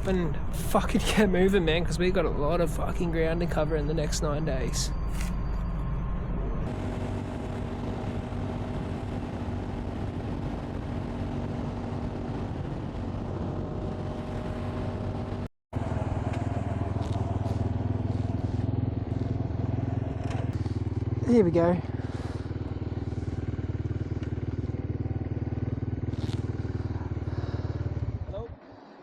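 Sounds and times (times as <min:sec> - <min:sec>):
motorcycle engine running: 0:06.4 - 0:28.8.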